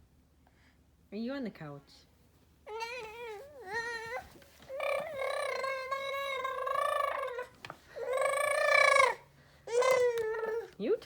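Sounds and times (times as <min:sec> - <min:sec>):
baby squealing: 0:02.7 - 0:10.7.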